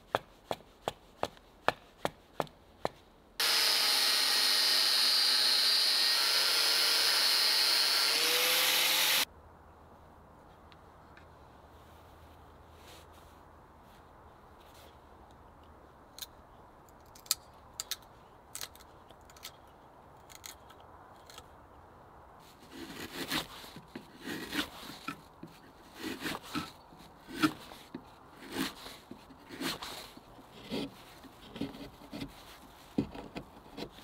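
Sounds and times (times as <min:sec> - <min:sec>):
carving tool scraping wood: 0:03.4 - 0:09.3, 0:22.6 - 0:34.0.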